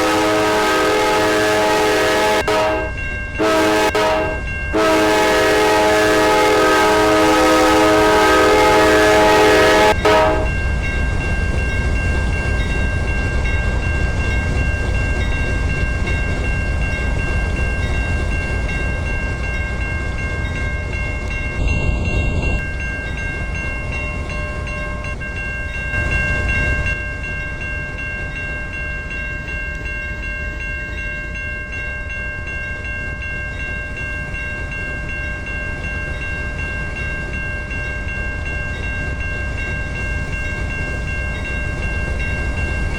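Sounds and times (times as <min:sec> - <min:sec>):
train air horn chord: 0:00.0 - 0:10.5
train rumbling past: 0:00.0 - 0:30.9, 0:32.4 - 0:42.9.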